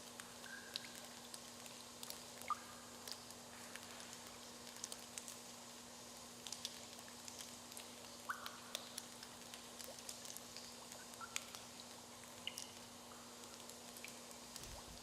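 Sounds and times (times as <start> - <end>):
water dripping in a cave: 0.0 - 15.0.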